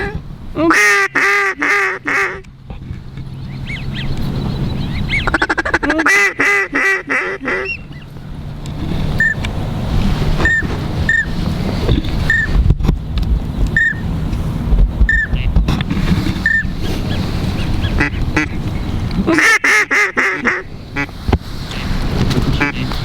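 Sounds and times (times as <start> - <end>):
low wind rumble: 0.0 - 23.0
mallard quacking: 5.0 - 8.0, 16.4 - 18.7, 19.3 - 23.0.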